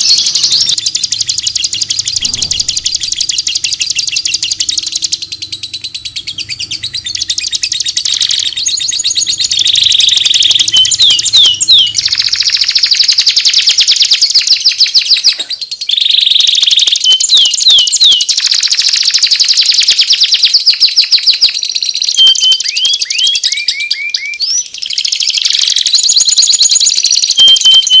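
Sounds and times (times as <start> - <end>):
upward-sliding bird whistles: 0.0 - 14.8
songbird chattering trills: 0.0 - 20.0.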